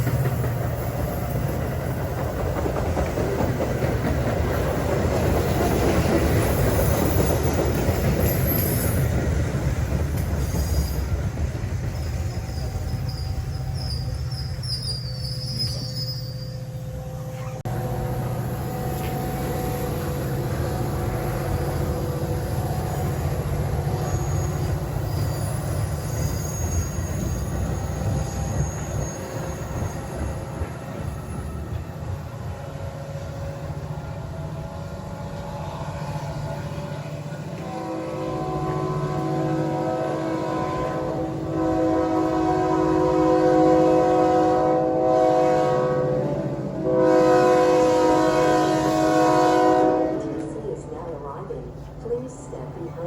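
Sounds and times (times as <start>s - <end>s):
train rumbling on rails: 0.0s - 53.0s
faint high wheel squeal: 8.2s - 9.0s, 10.4s - 11.2s, 11.8s - 17.6s, 21.1s - 30.4s
locomotive air horn blasts: 37.6s - 50.4s.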